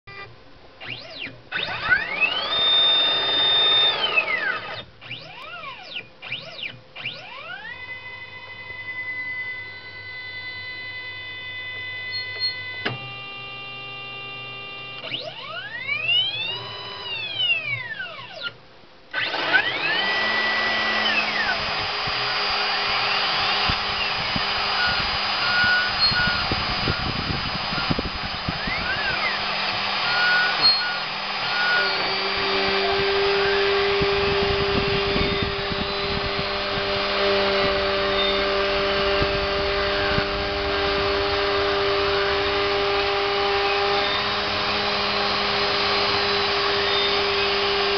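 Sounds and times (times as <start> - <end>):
stepper motors whining: 0.1 - 47.9
spindle cutting plastic: 0.8 - 7.5, 11.6 - 13.2, 15.0 - 47.9.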